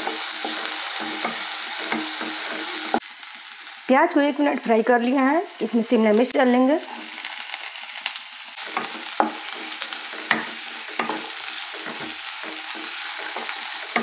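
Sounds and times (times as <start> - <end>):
vegetables sizzling in oil: 0.0 - 14.0
spatula knocking against pan: 8.8 - 9.4, 10.2 - 11.3.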